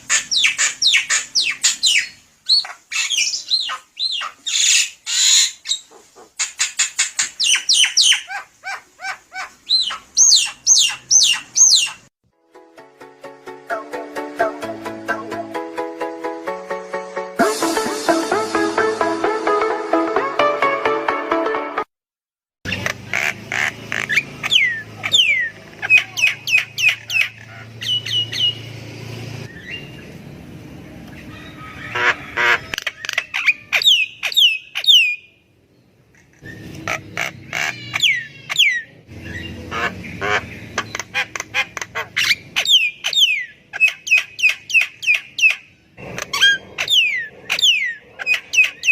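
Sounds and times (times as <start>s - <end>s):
bird whistling song: 0.1s - 8.3s, 9.7s - 12.1s, 24.0s - 28.7s, 29.5s - 30.1s, 32.7s - 35.4s, 42.2s - 45.7s, 46.3s - 48.9s.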